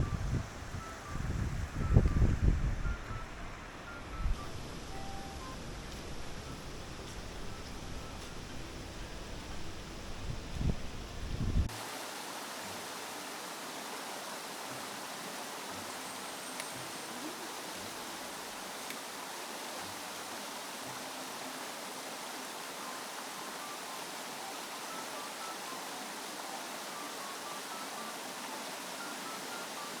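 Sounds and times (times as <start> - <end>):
mountain stream rushing: 11.7 - 30.0
faint ticks: 16.5 - 16.9.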